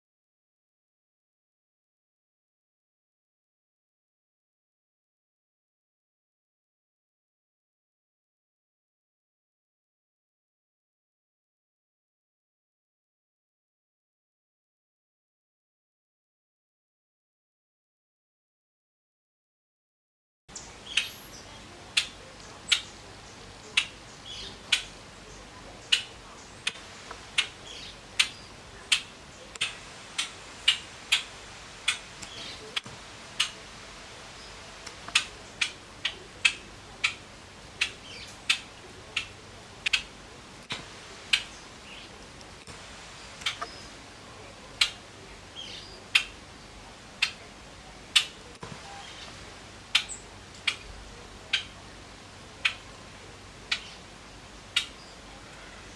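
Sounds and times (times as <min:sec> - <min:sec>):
bird beak clicking: 0:20.9 - 0:25.0, 0:25.9 - 0:33.6, 0:34.8 - 0:42.7, 0:43.3 - 0:44.0, 0:44.7 - 0:45.1, 0:49.9 - 0:50.9, 0:52.5 - 0:52.9, 0:54.7 - 0:55.0.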